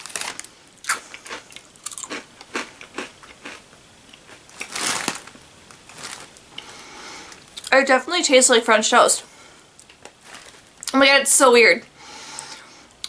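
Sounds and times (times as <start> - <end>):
person chewing crunchy cereal: 0.0 - 7.7.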